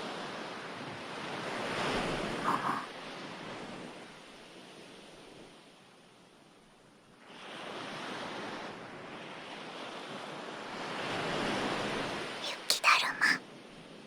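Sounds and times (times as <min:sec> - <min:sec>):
ocean waves washing onto shore: 0:07.2 - 0:12.4.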